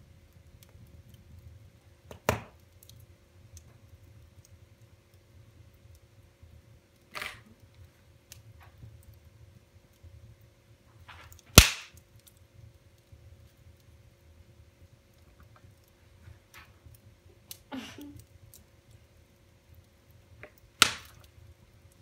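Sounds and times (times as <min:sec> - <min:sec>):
wood fire crackling: 0:00.0 - 0:22.0
burning wood cracking loudly: 0:11.0 - 0:14.0, 0:14.8 - 0:22.0.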